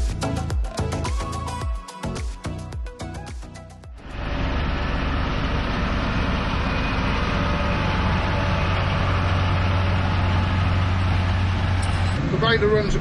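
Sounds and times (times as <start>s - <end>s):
tractor diesel engine running: 4.0s - 13.0s.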